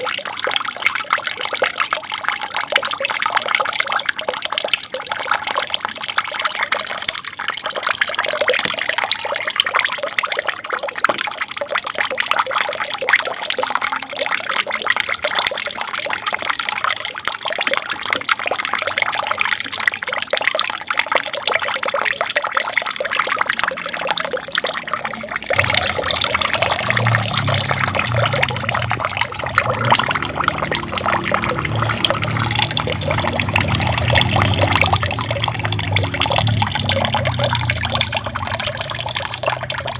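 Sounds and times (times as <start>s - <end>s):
water trickling down small waterfall: 0.0s - 39.9s
low hum: 25.4s - 39.8s.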